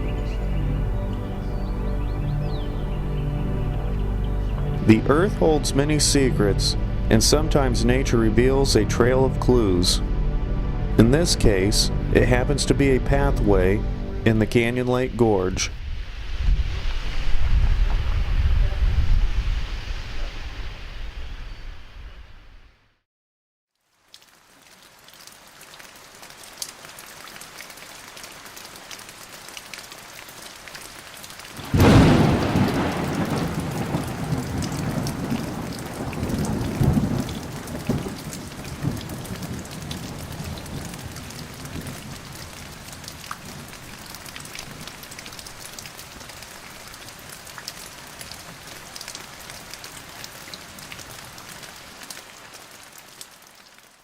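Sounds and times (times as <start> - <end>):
steady rain: 0.0 - 10.0, 14.6 - 21.2, 23.7 - 54.0
thunder rumbling: 31.6 - 45.1.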